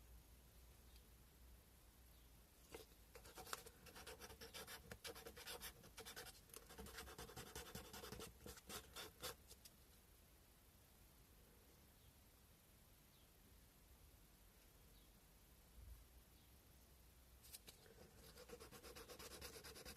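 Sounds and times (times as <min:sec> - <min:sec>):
sandpaper scratching on bone: 0:18.2 - 0:19.9.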